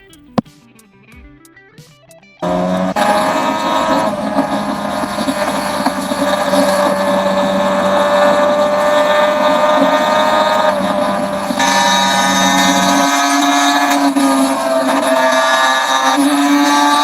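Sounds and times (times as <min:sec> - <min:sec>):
two-stroke motorcycle engine running: 0:02.4 - 0:17.0.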